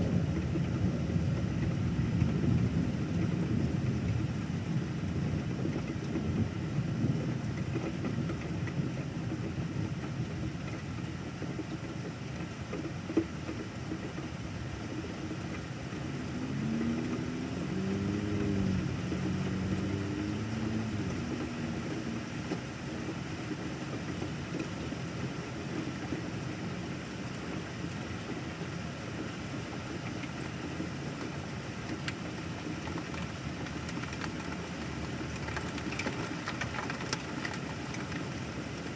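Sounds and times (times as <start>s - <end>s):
steady rain: 0.0s - 38.9s
vehicle engine passing: 15.9s - 22.6s.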